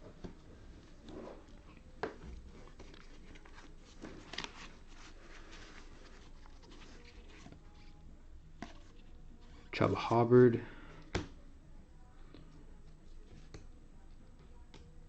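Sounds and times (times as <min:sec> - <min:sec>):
trading cards rustling: 0:02.2 - 0:08.0.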